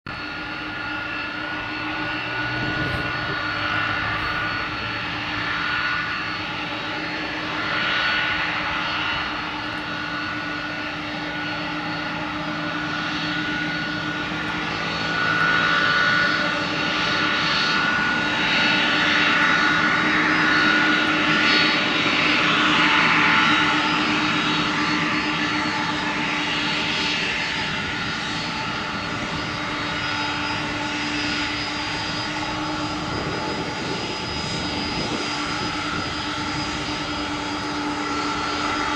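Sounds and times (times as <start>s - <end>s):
jet engines running: 0.1s - 38.9s.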